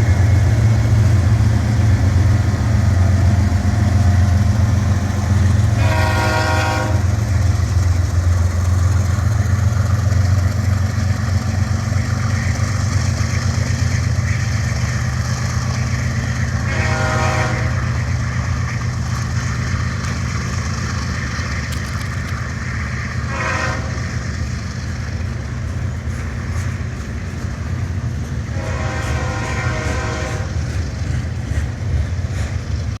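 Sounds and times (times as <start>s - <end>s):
diesel locomotive running: 0.0s - 33.0s
train horn blasts: 5.6s - 7.2s, 16.6s - 18.0s, 23.3s - 24.1s, 28.5s - 30.6s.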